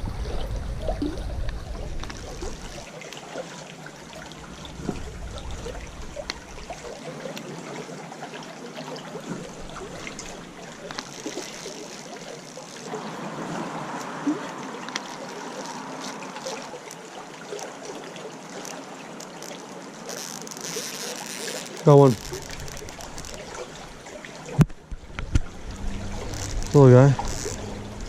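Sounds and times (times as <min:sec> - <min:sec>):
creek water over rocks: 0:00.0 - 0:28.0
small ticks and clicks: 0:01.4 - 0:03.2, 0:09.7 - 0:12.9, 0:14.8 - 0:27.8.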